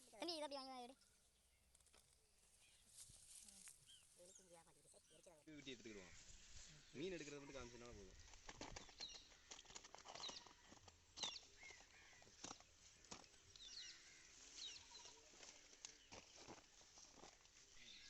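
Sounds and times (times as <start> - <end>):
small birds chirping: 0.0 - 18.0
light clicks and rustles: 8.2 - 13.7.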